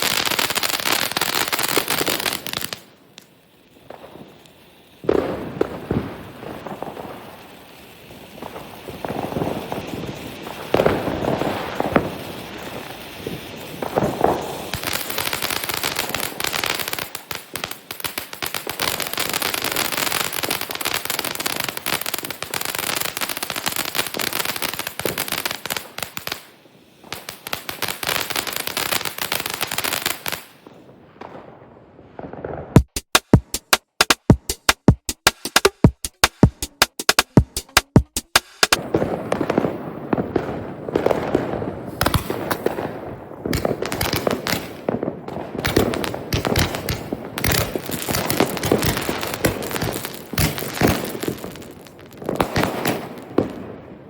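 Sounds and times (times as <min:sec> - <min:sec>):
fireworks crackling: 0:00.0 - 0:54.0
fireworks bangs: 0:03.8 - 0:22.6, 0:30.1 - 0:54.0
electronic drum beat: 0:32.8 - 0:38.8.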